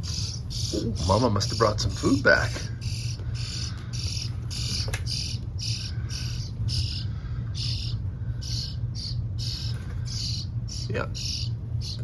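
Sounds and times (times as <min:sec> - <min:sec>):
nestlings begging calls: 0:00.0 - 0:12.0
steady low hum: 0:00.0 - 0:12.0.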